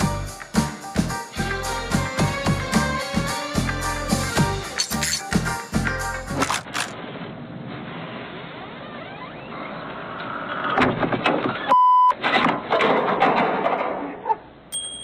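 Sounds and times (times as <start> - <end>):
short steady beep: 11.7 - 12.1.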